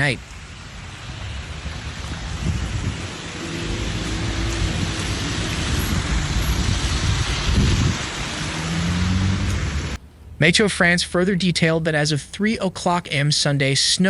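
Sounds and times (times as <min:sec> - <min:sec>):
outdoor rushing noise: 0:00.0 - 0:10.6.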